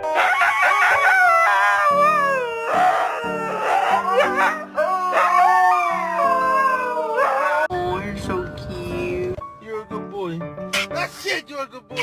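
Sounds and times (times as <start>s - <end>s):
background music: 0.0s - 12.0s
dog howling: 0.1s - 7.7s.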